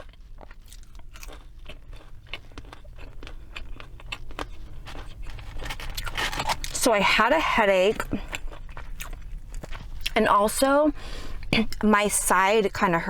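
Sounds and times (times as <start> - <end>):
person chewing crunchy food: 0.0 - 11.9.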